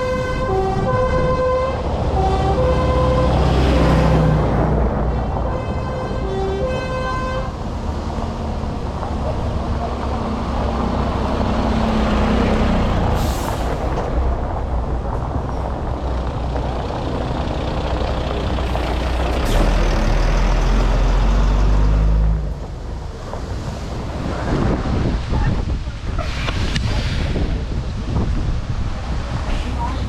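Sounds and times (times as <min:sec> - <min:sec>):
diesel truck engines running: 0:00.0 - 0:30.0.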